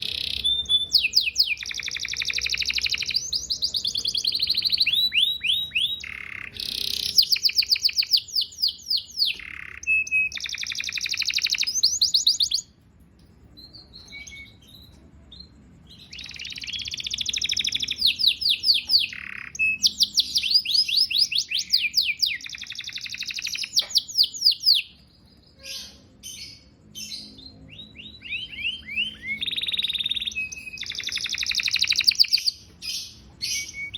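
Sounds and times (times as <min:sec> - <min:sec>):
canary singing trills: 0:00.0 - 0:33.9.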